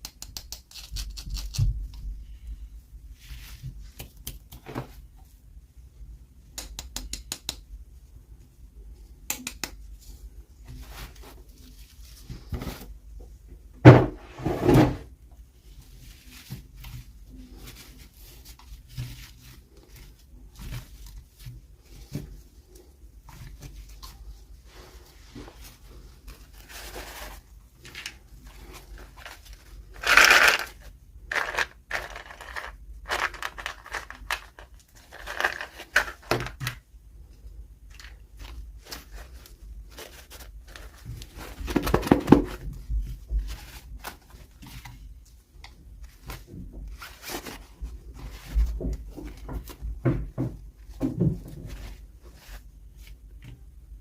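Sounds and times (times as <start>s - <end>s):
packaging rustling: 26.4s - 36.6s
plastic toy pieces clicking: 30.0s - 30.7s.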